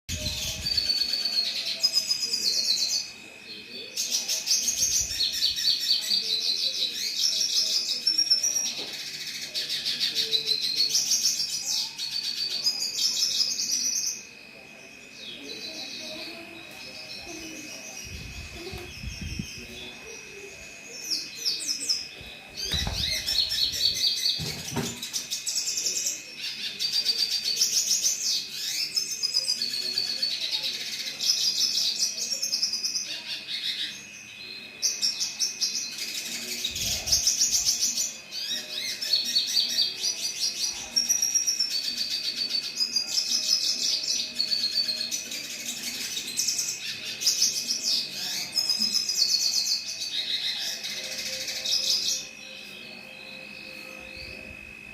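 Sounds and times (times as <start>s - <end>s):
bird twittering: 4.1s - 34.0s
thin high whine: 50.6s - 54.9s.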